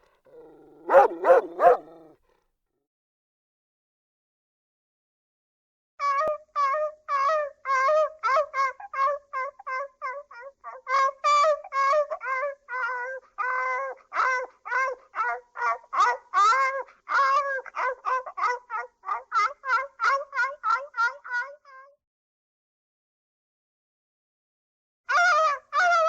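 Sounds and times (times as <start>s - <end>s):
small dog yipping: 0.4s - 2.1s.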